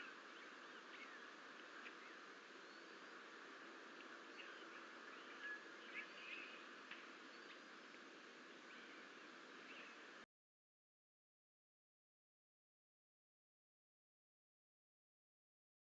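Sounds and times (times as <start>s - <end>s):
faint bird chirps: 0.0s - 3.4s, 4.0s - 10.2s
faint outdoor microphone hiss: 0.0s - 10.3s.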